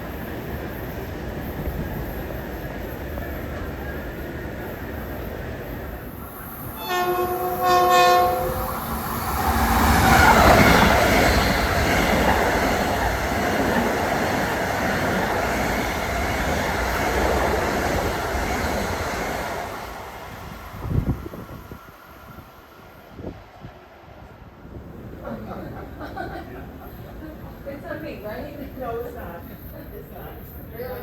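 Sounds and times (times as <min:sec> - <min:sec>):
train wheels rushing on rails: 0:00.0 - 0:31.0
train horn blasts: 0:06.7 - 0:08.9.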